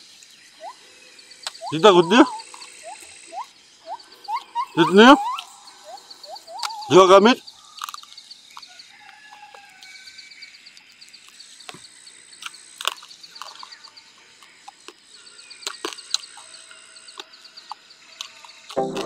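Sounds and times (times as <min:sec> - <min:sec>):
faint bird calls: 0:00.0 - 0:18.8
close crunchy chewing: 0:07.6 - 0:18.8
high pulsing trill: 0:18.8 - 0:19.0.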